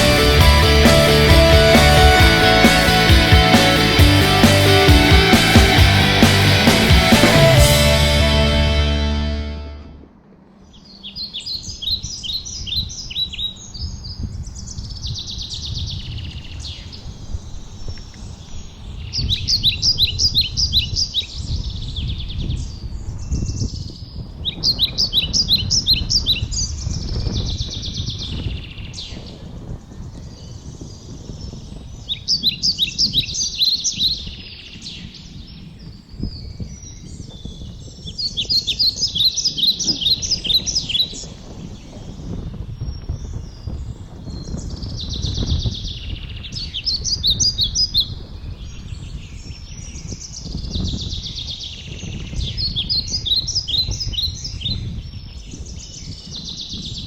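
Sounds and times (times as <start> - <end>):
low rumble: 0.0 - 10.5.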